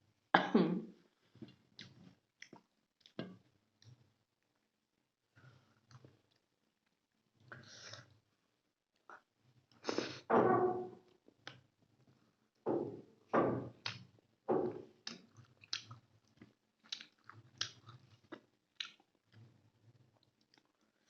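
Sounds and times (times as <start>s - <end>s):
person chewing food: 1.4s - 3.2s, 15.0s - 21.0s.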